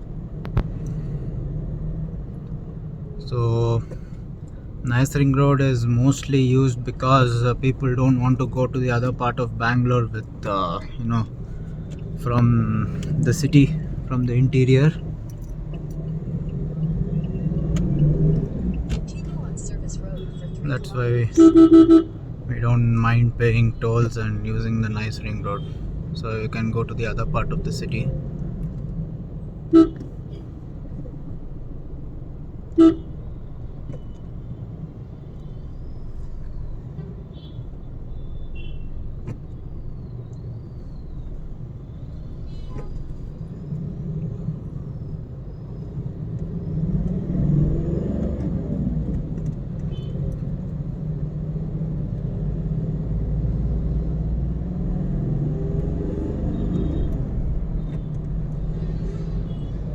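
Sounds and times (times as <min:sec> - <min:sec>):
car driving in traffic: 0:00.0 - 0:59.9
car horn honks: 0:20.1 - 0:22.2, 0:29.7 - 0:30.2, 0:32.7 - 0:33.2, 0:37.3 - 0:39.0, 0:49.9 - 0:50.2.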